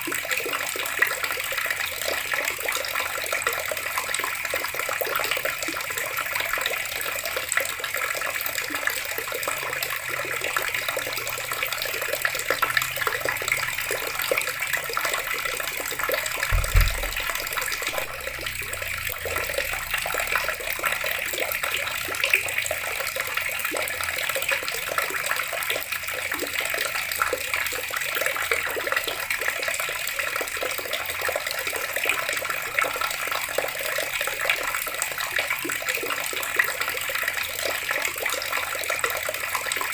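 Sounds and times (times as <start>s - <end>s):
water running from a tap: 0.0s - 39.9s
low thump: 16.5s - 19.4s.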